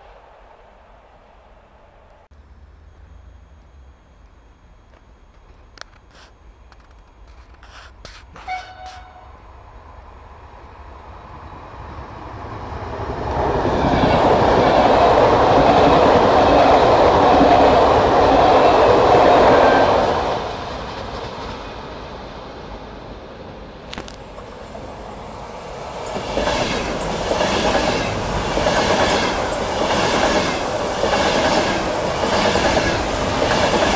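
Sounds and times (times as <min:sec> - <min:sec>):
train passing at speed: 0:00.0 - 0:03.9, 0:08.3 - 0:33.9.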